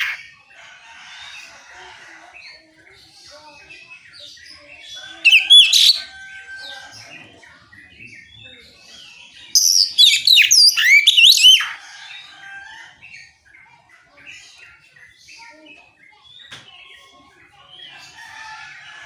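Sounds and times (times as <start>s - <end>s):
bird singing whistled phrases: 9.6s - 11.7s.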